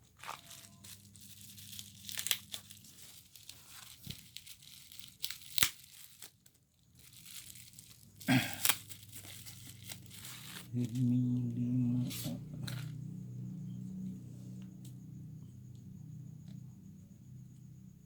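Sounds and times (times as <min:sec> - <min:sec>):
packaging tearing and crinkling: 0:00.2 - 0:11.1
packaging sharp snaps: 0:04.9 - 0:06.3.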